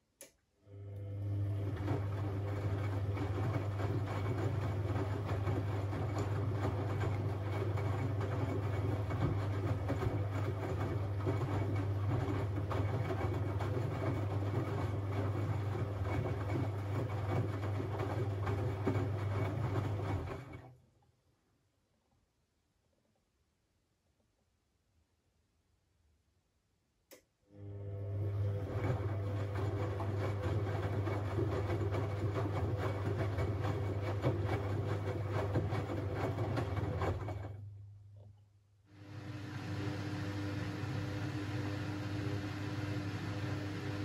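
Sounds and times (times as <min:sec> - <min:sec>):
washing machine churning hum: 0:00.6 - 0:20.8, 0:27.5 - 0:38.2, 0:38.9 - 0:44.0.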